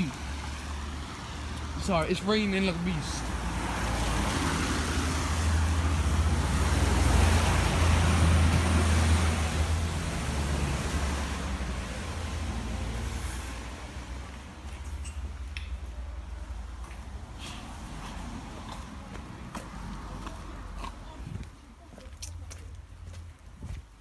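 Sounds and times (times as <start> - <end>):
heavy rain: 0.0 - 14.2
vehicle passing on wet road: 0.0 - 15.4, 16.0 - 21.3.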